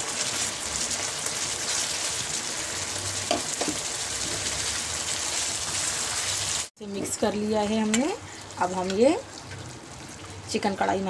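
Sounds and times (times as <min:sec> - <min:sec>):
meat sizzling in hot fat: 0:00.0 - 0:06.7.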